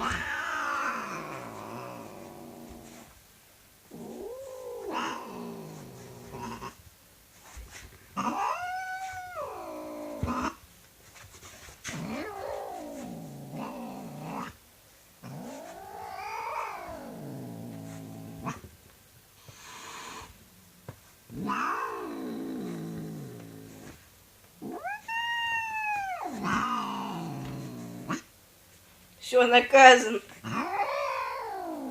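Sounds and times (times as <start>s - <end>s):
cat growling and yowling: 0.0s - 3.0s, 3.9s - 6.8s, 8.2s - 10.6s, 11.9s - 14.6s, 15.2s - 18.6s, 21.3s - 24.0s, 24.6s - 28.3s, 30.4s - 31.9s.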